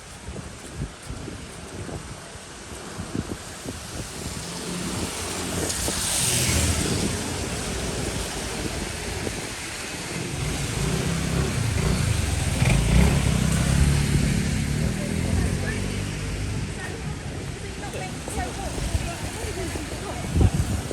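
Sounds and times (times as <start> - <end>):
tyres hissing on wet street: 0.0 - 20.9
vehicle engine rumbling: 6.8 - 20.9.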